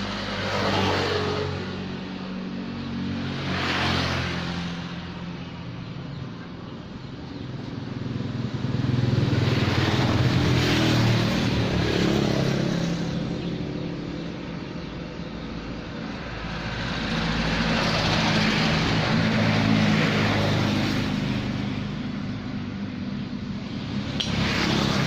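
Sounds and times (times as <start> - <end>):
scooter engine revving: 7.3 - 22.8, 23.7 - 25.0.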